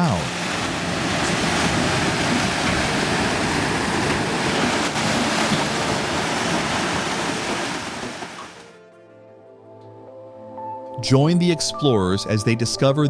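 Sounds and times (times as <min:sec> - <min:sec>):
flood torrent rushing: 0:00.0 - 0:08.7.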